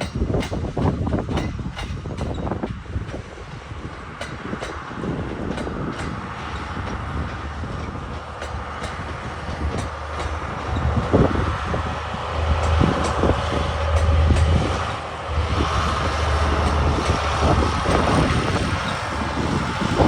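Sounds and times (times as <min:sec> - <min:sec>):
train running past: 0:00.0 - 0:20.0
wheels clicking over rail joints: 0:00.0 - 0:20.0.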